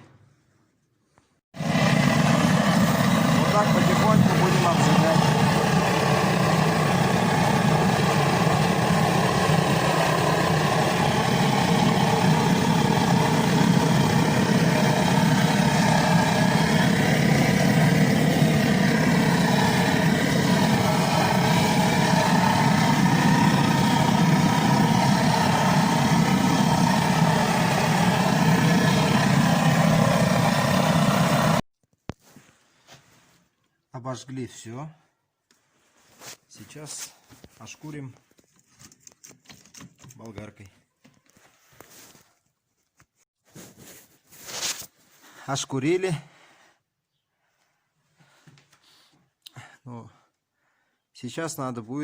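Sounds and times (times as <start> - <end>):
blowtorch flame roaring: 1.6 - 31.6.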